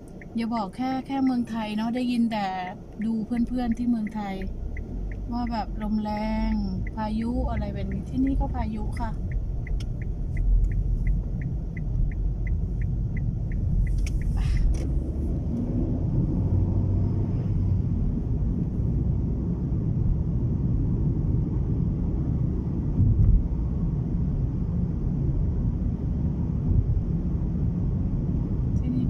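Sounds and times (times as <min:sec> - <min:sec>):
light even ticking: 0:00.0 - 0:15.7
road noise inside car: 0:00.0 - 0:29.0
wind buffeting car: 0:00.0 - 0:29.0.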